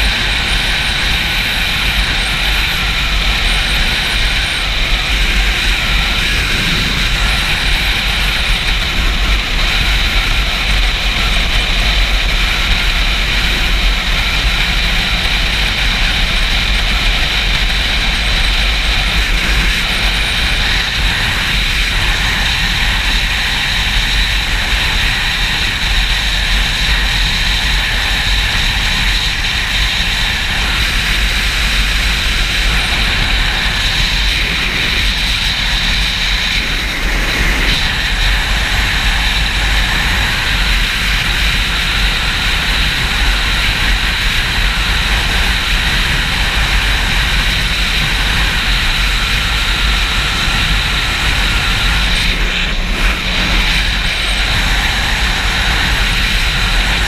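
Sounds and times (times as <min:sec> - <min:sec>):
motorcycle running: 0:00.0 - 0:57.0
wind buffeting microphone: 0:00.0 - 0:57.0.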